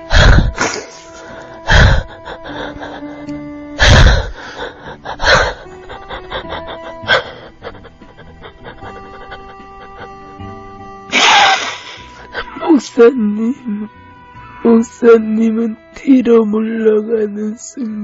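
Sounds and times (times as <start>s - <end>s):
loud gasping breaths: 0.0s - 10.4s, 11.1s - 12.5s
soft music with held notes: 0.0s - 18.0s.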